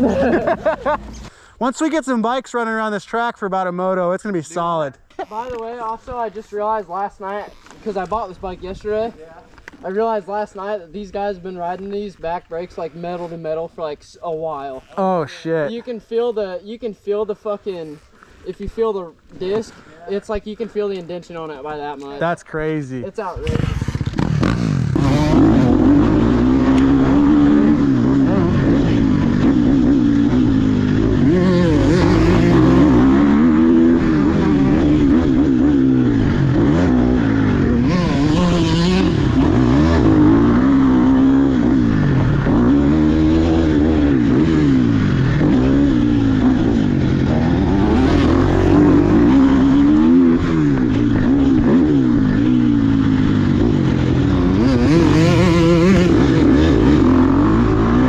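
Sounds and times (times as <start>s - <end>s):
dirt bike engine revving: 23.3s - 58.0s.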